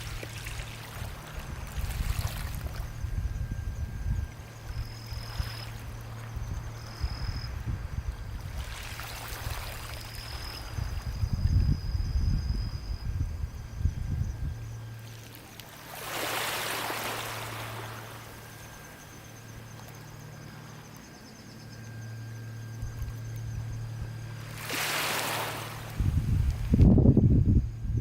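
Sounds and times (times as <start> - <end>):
wind buffeting microphone: 0.0 - 9.9, 10.6 - 15.0, 25.8 - 28.0
low steady hum: 0.0 - 28.0
sea waves washing onto shore: 15.1 - 18.4, 24.5 - 26.8.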